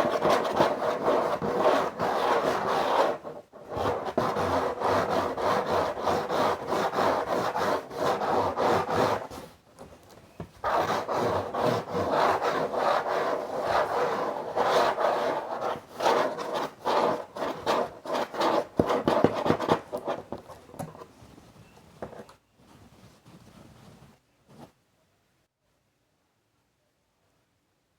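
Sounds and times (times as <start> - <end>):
scratching and rubbing on a box: 0.0 - 9.6, 10.4 - 22.3.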